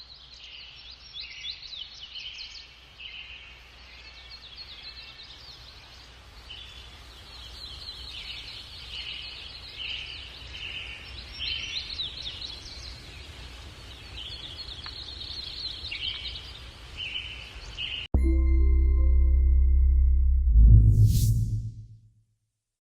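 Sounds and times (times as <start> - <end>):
music: 18.1 - 22.0
steady low rumble: 18.2 - 22.0.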